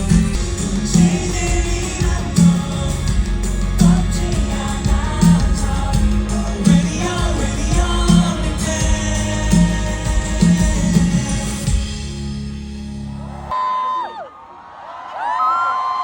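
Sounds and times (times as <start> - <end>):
person singing: 0.0 - 12.2
low beat: 0.0 - 13.2
live band music: 0.0 - 13.5.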